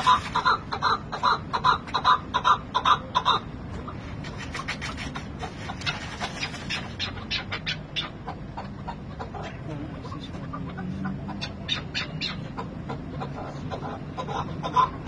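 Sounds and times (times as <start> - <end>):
partridge clucking calls: 0.0 - 15.0
bird chattering notes: 4.2 - 15.0.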